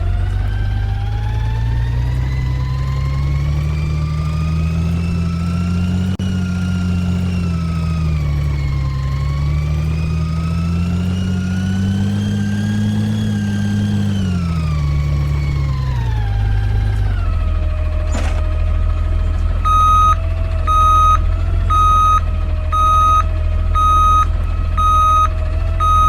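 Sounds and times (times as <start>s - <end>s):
garbage truck engine running: 0.0s - 26.0s
hydraulic whine: 11.4s - 26.0s.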